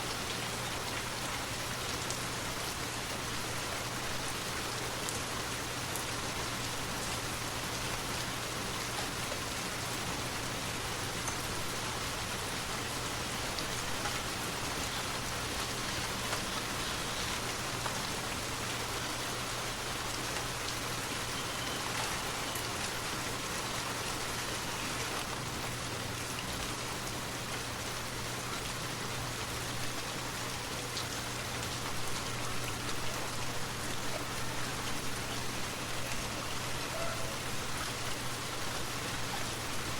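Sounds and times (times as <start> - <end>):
steady rain hiss: 0.0 - 39.9
rain drop ticks: 11.2 - 11.5, 13.5 - 18.7, 19.5 - 23.0.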